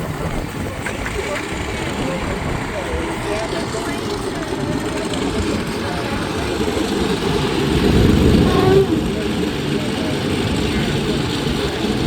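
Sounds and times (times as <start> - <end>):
radial aircraft engine running: 0.0 - 12.0.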